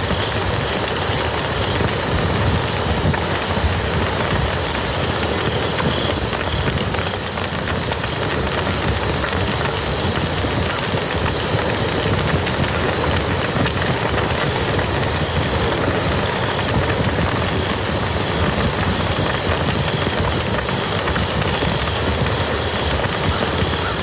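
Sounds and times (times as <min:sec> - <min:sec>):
wood fire crackling: 0:00.0 - 0:24.0
river flowing: 0:00.2 - 0:08.3.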